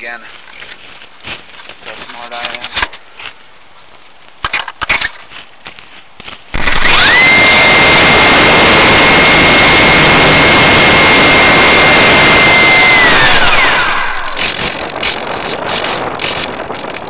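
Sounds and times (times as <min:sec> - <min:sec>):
electric motor whine: 0:06.6 - 0:16.6.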